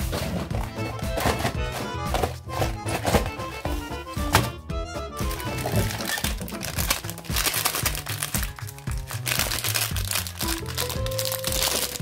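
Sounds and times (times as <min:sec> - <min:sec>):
background music with bass line: 0:00.0 - 0:12.0
foil wrapping crinkling: 0:05.2 - 0:12.0.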